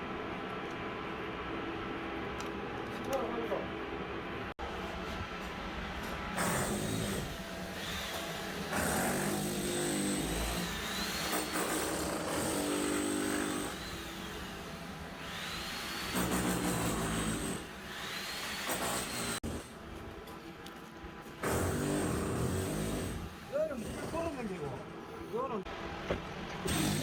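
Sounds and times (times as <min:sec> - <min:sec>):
power tool motor whining: 0:26.6 - 0:27.0.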